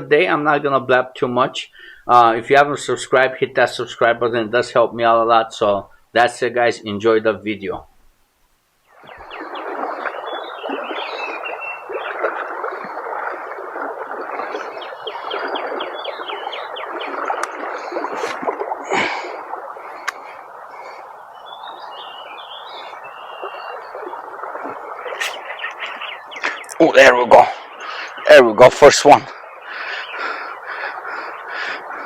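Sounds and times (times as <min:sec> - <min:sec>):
birds chirping: 0:01.2 - 0:06.2, 0:07.5 - 0:18.2, 0:18.9 - 0:32.0
river current: 0:08.8 - 0:32.0
short sharp sound: 0:25.2 - 0:25.4.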